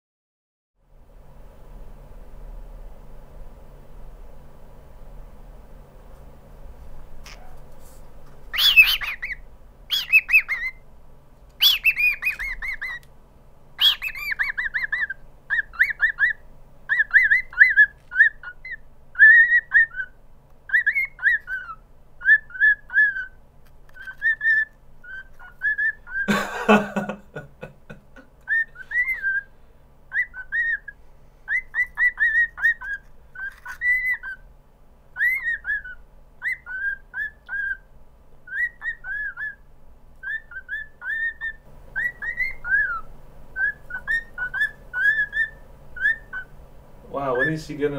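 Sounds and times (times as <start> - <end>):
cockatiel shrill calls: 8.5 - 10.8, 11.6 - 13.0, 13.8 - 26.3, 28.5 - 29.5, 30.1 - 34.4, 35.2 - 37.9, 38.5 - 39.6, 40.2 - 46.5
cockatiel whistling notes: 8.5 - 10.8, 11.6 - 13.1, 13.8 - 26.3, 28.5 - 29.5, 30.1 - 34.4, 35.2 - 37.9, 38.5 - 39.6, 40.2 - 46.5.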